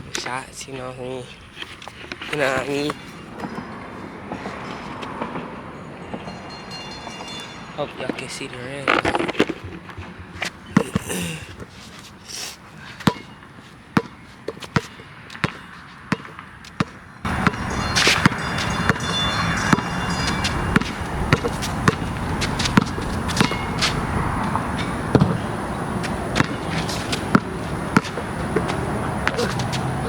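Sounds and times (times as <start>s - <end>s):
basketball bouncing on hard court: 13.0s - 13.4s, 14.0s - 30.0s
loud rushing noise: 17.3s - 30.0s.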